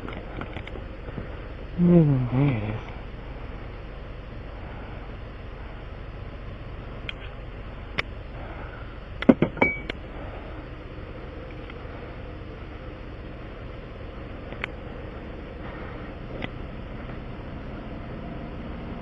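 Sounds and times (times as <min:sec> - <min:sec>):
vehicle engine idling: 0:00.0 - 0:19.0
hard objects knocking and clinking: 0:09.2 - 0:09.9.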